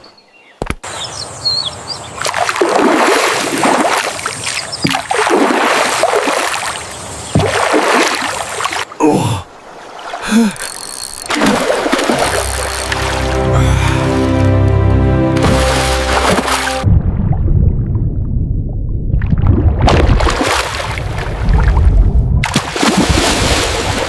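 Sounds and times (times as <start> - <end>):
oars splashing in water: 2.1 - 9.0, 9.6 - 13.5, 15.3 - 16.9, 19.2 - 24.0.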